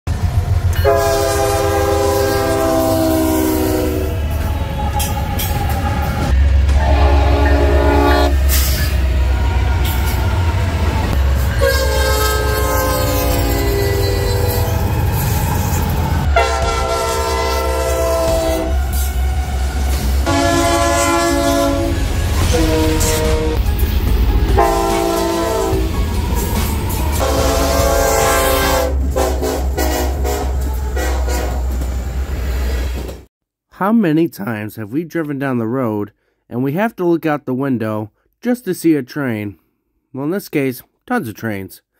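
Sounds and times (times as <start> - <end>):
train rumble: 0.1 - 33.3
locomotive air horn: 0.7 - 10.2, 11.5 - 23.7, 24.6 - 26.0, 27.1 - 31.8.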